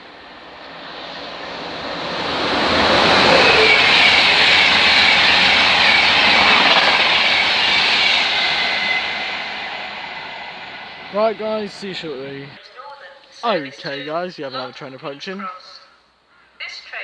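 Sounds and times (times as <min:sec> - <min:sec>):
faint high ringing from rails: 0:00.0 - 0:12.6
train passing: 0:00.0 - 0:12.6.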